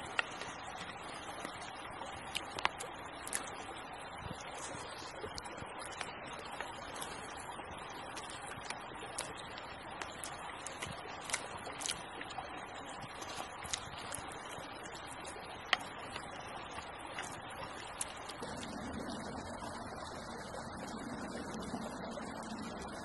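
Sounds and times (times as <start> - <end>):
campfire crackling and popping: 0.0 - 23.0
small creek rushing: 0.0 - 23.0
deep rumble: 18.4 - 23.0.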